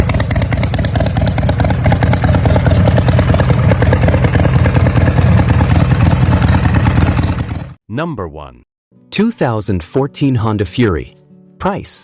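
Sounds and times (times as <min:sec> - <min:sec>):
motorcycle engine running loudly: 0:00.0 - 0:07.8.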